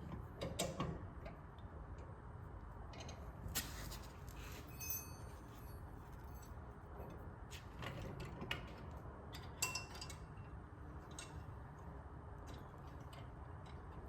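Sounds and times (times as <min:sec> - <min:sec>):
metal clink with ring: 0:04.6 - 0:06.5.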